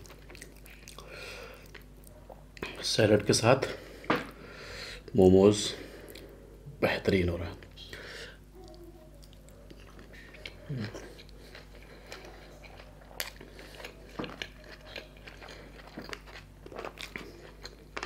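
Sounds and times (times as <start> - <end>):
chewing a dumpling: 0.0 - 2.7, 8.4 - 18.0.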